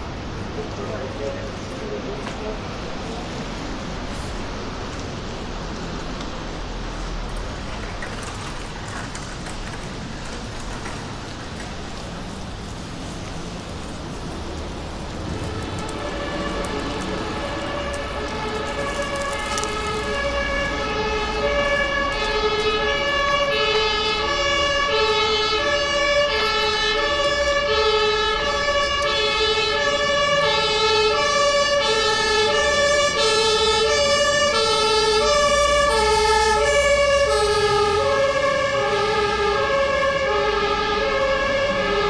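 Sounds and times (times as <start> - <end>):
street traffic: 0.0 - 42.0
two-tone emergency siren: 15.0 - 42.0.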